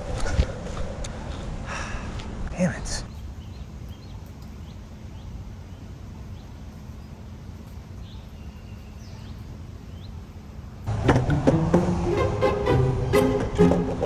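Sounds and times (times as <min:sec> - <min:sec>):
small birds chirping: 0:02.6 - 0:10.9.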